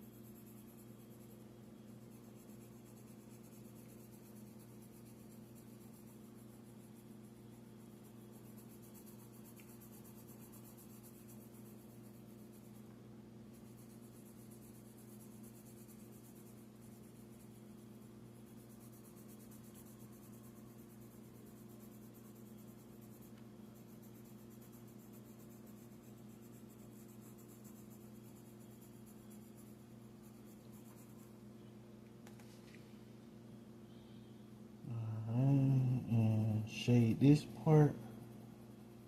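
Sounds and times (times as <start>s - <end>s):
pencil scratching on paper: 0.0s - 12.9s, 13.5s - 31.4s
low electrical hum: 0.0s - 39.0s.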